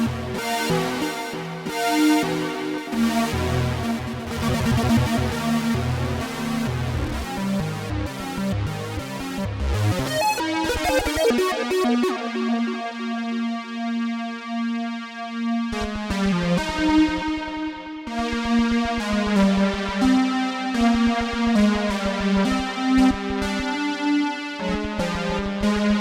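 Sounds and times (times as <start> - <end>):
analog synthesizer notes: 0.0 - 14.3.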